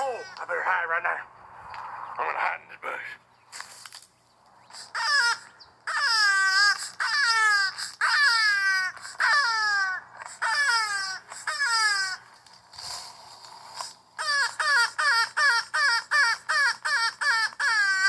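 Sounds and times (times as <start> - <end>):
bird wailing cries: 4.6 - 12.4, 14.2 - 18.0.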